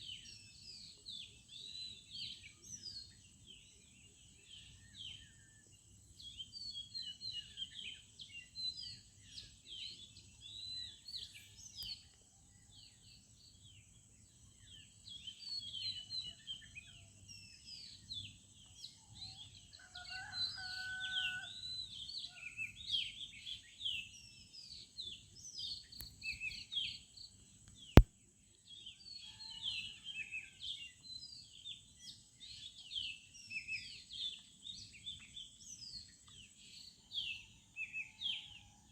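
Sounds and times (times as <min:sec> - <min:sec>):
small birds chirping and twittering: 0:00.0 - 0:38.9
rooster crowing: 0:19.8 - 0:21.6.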